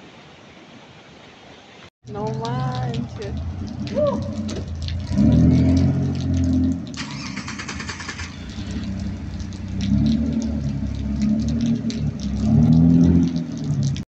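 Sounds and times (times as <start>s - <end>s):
vehicle engine revving: 3.3s - 14.0s.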